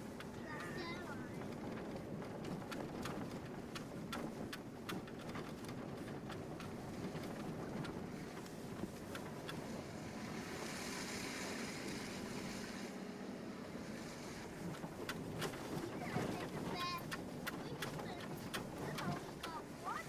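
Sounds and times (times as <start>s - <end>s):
engine and tyre rumble: 0.0s - 20.0s
light ticks: 2.4s - 9.7s, 14.7s - 20.0s
tyres hissing through slush: 9.6s - 13.1s, 13.8s - 20.0s.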